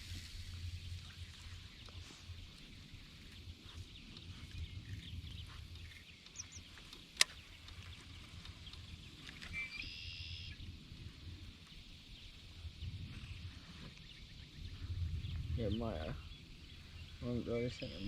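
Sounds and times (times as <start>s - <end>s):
low rumble on microphone: 0.0s - 9.5s, 10.4s - 18.0s.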